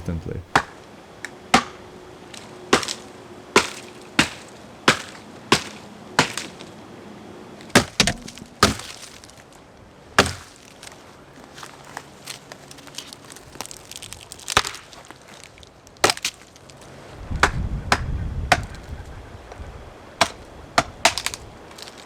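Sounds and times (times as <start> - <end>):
dry branches cracking: 2.2 - 6.8, 7.6 - 17.0, 20.2 - 22.0.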